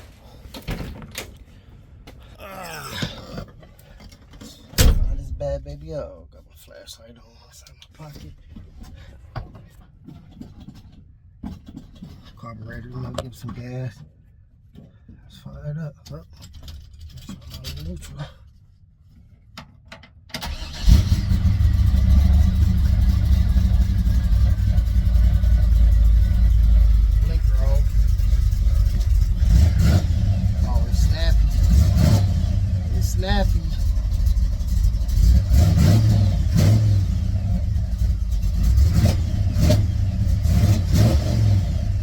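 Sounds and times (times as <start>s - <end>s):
car engine running: 20.5s - 42.0s.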